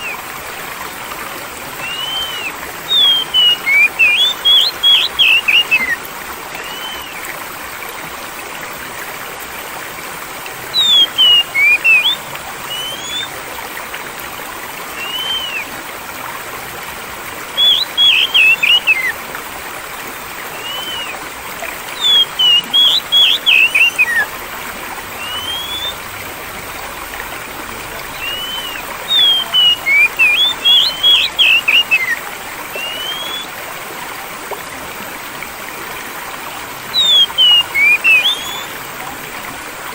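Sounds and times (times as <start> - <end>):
trickling water: 0.0 - 39.9
songbird chirping and whistling: 1.8 - 6.0, 6.6 - 7.2, 10.7 - 13.3, 15.0 - 15.7, 17.6 - 19.1, 20.5 - 21.2, 22.0 - 24.3, 25.2 - 26.0, 28.1 - 32.2, 32.8 - 33.5, 36.9 - 38.7.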